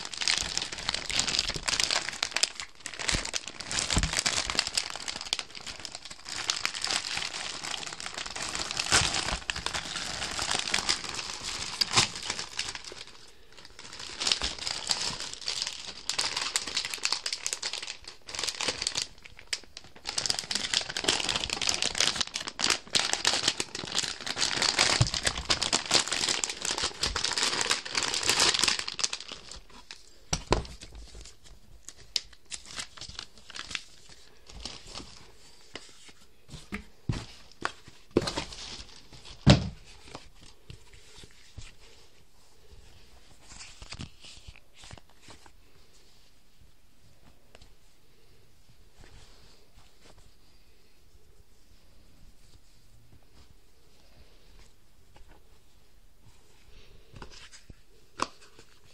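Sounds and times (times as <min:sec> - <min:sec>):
packaging crinkling: 0:00.0 - 0:42.0, 0:43.4 - 0:45.6.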